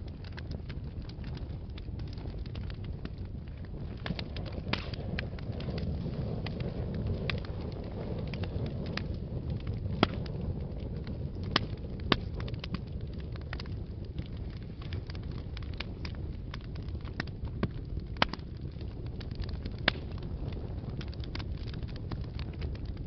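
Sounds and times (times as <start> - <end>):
fire crackling in fireplace: 0.0 - 23.0.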